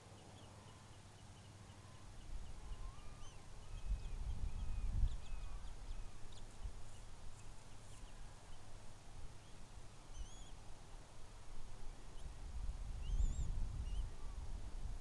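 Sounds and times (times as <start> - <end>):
faint bird chirps and whistles: 0.1 - 8.2, 9.4 - 10.6, 13.0 - 14.5.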